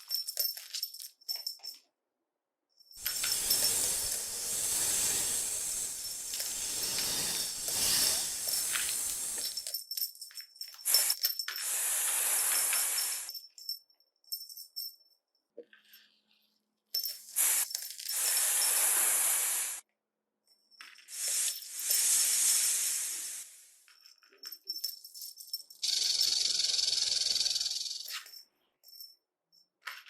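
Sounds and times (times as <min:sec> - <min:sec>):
snake hissing: 0:03.0 - 0:09.6, 0:11.6 - 0:13.3, 0:17.4 - 0:19.8, 0:21.2 - 0:23.8, 0:25.8 - 0:27.9.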